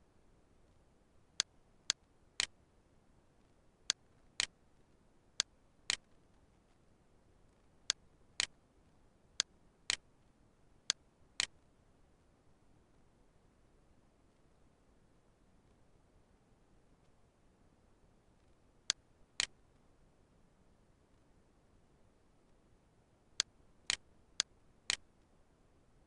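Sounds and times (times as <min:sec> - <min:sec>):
computer mouse buttons clicking: 0:01.9 - 0:02.6.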